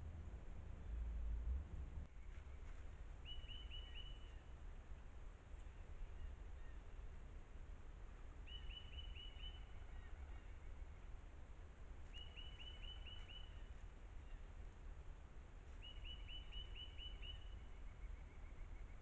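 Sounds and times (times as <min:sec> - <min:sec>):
steady low rumble: 0:00.0 - 0:03.3
songbird singing: 0:02.0 - 0:07.5, 0:08.1 - 0:19.0.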